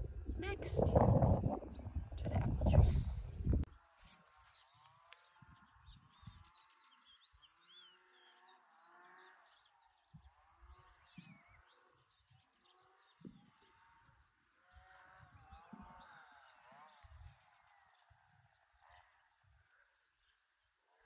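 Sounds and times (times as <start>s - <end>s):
wind rumble on microphone: 0.0s - 3.8s, 13.1s - 18.6s
small birds chirping: 0.0s - 21.0s.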